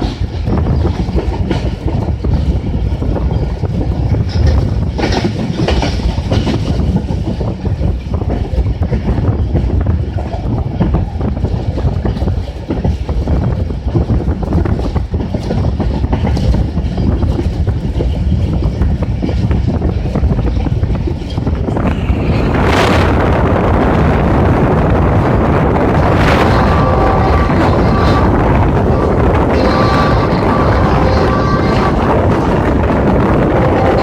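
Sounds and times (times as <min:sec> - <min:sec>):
wheels clicking over rail joints: 0:00.0 - 0:21.8
loud steady rushing noise: 0:00.0 - 0:34.0
train rumbling past: 0:00.0 - 0:34.0.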